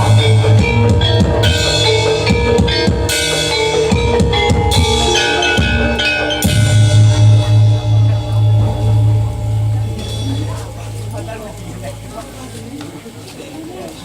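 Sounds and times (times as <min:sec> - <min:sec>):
drums beaten quickly: 0:00.0 - 0:13.3
ringing pitched tones: 0:00.0 - 0:13.7.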